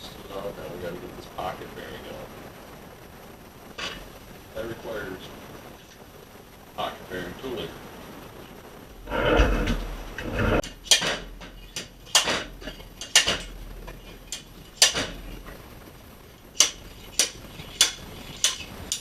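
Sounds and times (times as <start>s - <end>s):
low rubbing thump: 9.0s - 10.7s
sharp knocks on metal: 10.4s - 15.3s, 16.6s - 19.0s.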